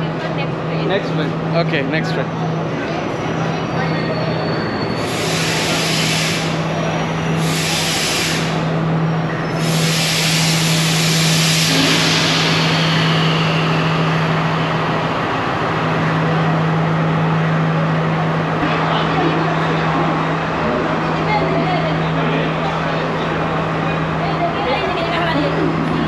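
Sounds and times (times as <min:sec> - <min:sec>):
diesel engine hum: 0:00.0 - 0:26.0
air hissing: 0:05.0 - 0:08.8, 0:09.5 - 0:14.2.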